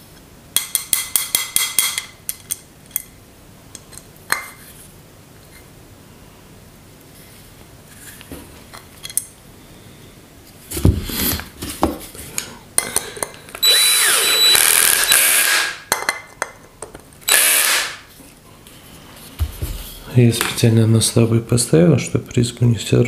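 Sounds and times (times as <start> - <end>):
drill driving screws: 13.6 - 15.8, 17.3 - 18.1.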